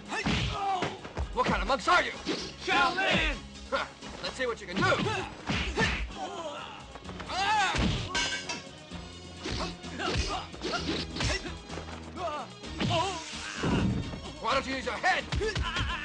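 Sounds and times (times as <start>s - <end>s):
fighters shouting: 0.0s - 1.2s, 2.4s - 4.0s, 4.8s - 8.1s, 9.5s - 11.6s, 12.2s - 14.0s, 15.2s - 16.0s
background film music: 0.0s - 16.0s
punch and kick impacts: 0.1s - 1.6s, 4.8s - 6.1s, 7.7s - 8.2s.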